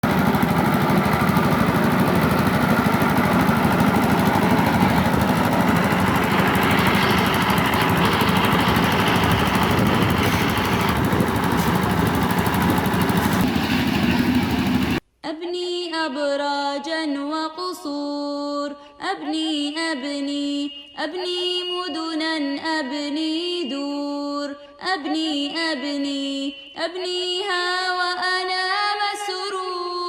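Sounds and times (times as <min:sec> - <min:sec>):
small engine chugging: 0:00.0 - 0:15.0.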